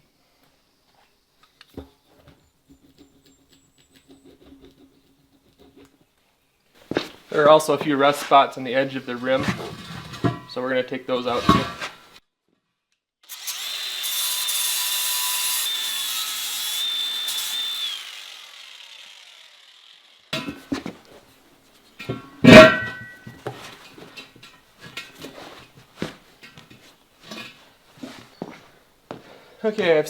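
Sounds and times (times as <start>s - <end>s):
metal clanks: 9.1s - 12.1s, 20.4s - 21.2s, 22.0s - 28.6s
ringing metal clang: 11.2s - 12.0s, 22.0s - 23.7s
power tool grinding metal: 13.3s - 20.9s.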